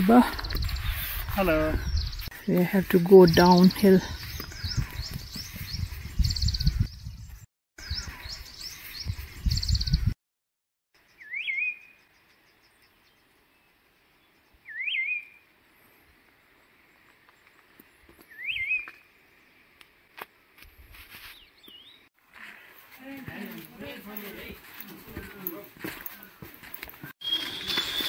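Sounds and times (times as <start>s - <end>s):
wild birds chirping and trilling: 3.2s - 10.2s, 11.0s - 19.8s
swooping whistled bird call: 11.2s - 12.0s, 14.6s - 15.4s, 18.3s - 19.0s, 27.2s - 28.0s.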